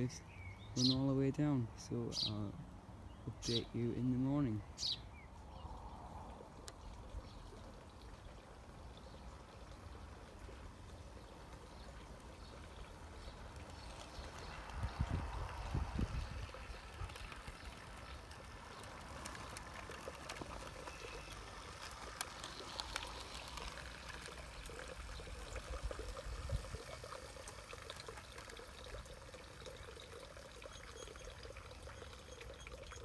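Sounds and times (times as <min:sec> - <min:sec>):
water trickling: 0:03.0 - 0:33.0
faint clicks: 0:16.6 - 0:25.4.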